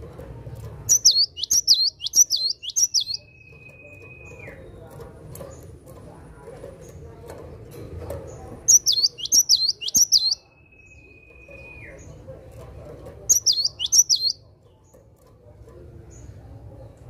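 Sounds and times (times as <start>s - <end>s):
bird singing sharp high notes: 0.9s - 4.6s, 8.7s - 12.1s, 13.3s - 14.4s.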